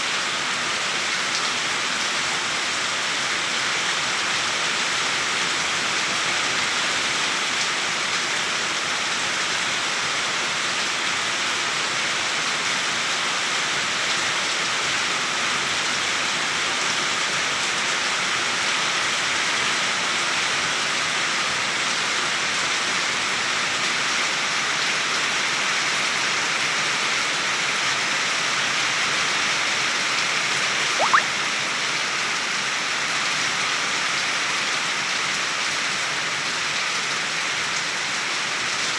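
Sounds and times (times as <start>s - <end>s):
short rising chirp: 31.0s - 31.4s.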